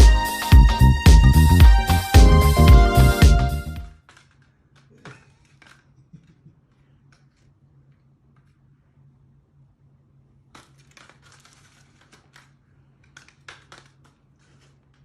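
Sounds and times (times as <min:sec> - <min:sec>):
faint crackles and clicks: 0:10.5 - 0:15.0.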